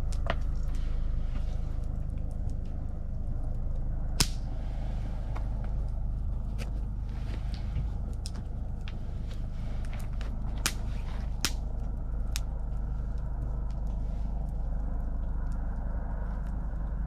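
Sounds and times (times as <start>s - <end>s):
campfire crackling: 0.0s - 17.0s
low rumble: 0.0s - 17.0s
sharp pops of fire: 4.2s - 4.6s, 10.1s - 11.6s.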